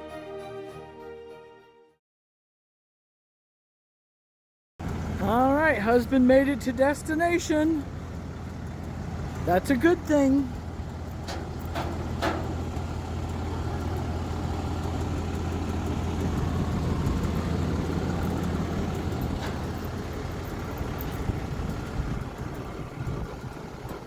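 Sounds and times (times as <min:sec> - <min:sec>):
road noise inside cab: 0:04.8 - 0:24.0
truck engine droning: 0:04.8 - 0:24.0.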